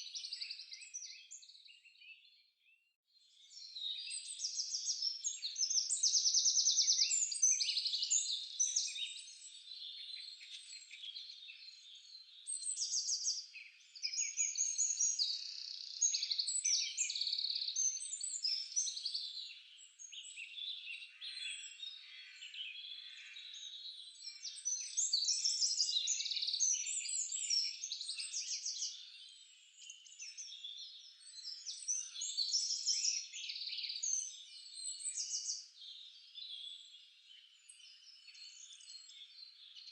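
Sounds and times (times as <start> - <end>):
songbirds chorus: 0.0 - 39.9.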